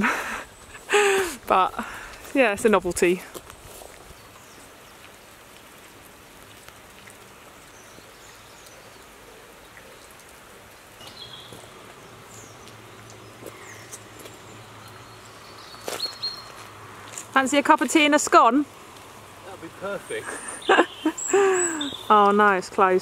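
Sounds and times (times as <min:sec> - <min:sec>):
light rain falling on water: 0:00.0 - 0:23.0
birds chirping: 0:07.6 - 0:23.0.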